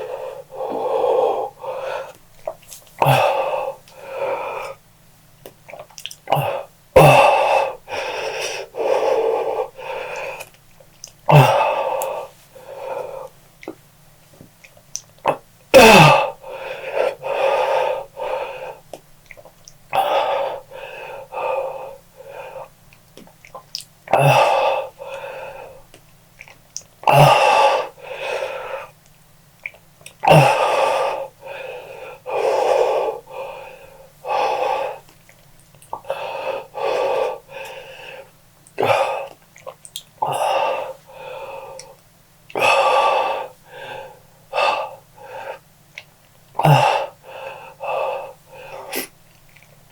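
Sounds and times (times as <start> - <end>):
person breathing hard and wheezing: 0.0 - 2.2, 3.0 - 4.8, 6.3 - 10.6, 11.3 - 13.4, 15.8 - 18.9, 19.9 - 22.8, 24.1 - 25.9, 27.1 - 29.0, 30.2 - 35.1, 36.0 - 39.4, 40.2 - 45.7, 46.6 - 49.2.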